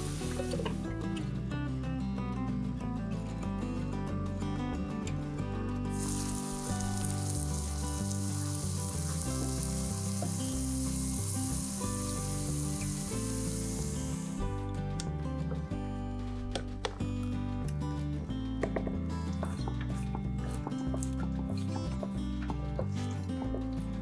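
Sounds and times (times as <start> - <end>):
leeks sizzling in a pan: 0.0 - 0.8, 5.9 - 14.5
background music: 0.0 - 24.0.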